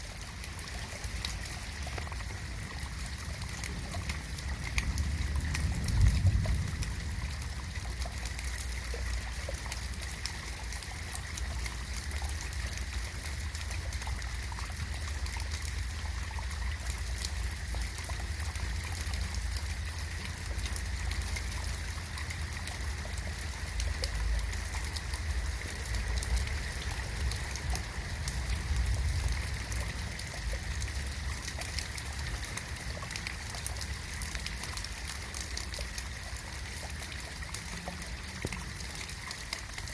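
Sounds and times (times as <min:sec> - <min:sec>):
steady rain falling: 0:00.0 - 0:39.9
low rumble: 0:03.6 - 0:09.0.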